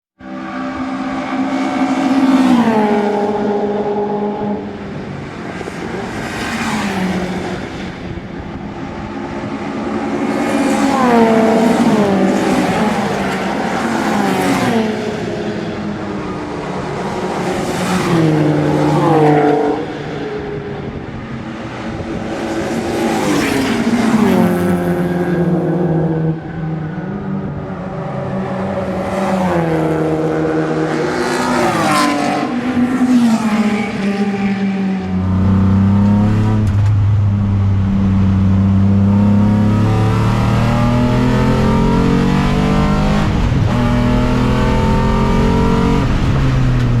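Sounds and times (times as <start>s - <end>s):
race car engine with gear changes: 0.2s - 47.0s.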